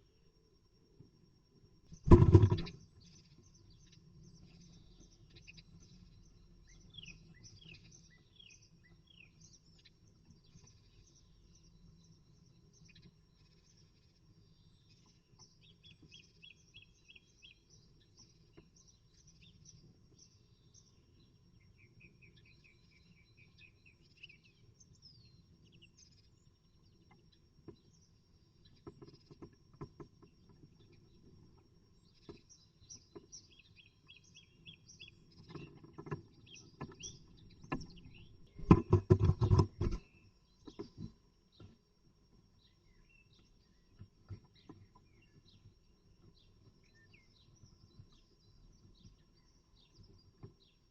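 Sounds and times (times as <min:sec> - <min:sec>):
small birds chirping: 0:01.5 - 0:50.9
knocking and scraping: 0:02.0 - 0:02.8, 0:35.4 - 0:40.1.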